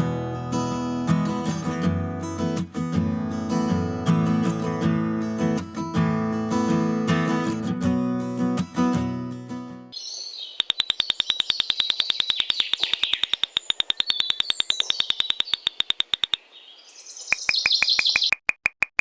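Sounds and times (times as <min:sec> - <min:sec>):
birds chirping: 0:10.0 - 0:18.4.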